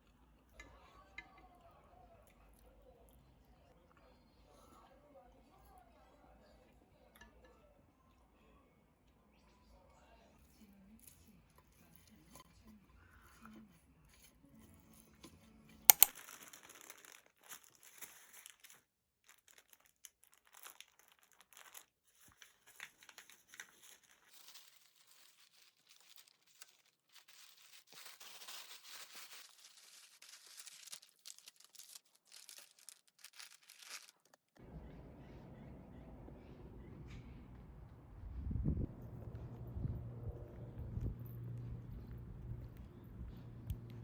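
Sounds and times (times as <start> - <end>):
packaging crinkling and tearing: 15.9 - 34.6.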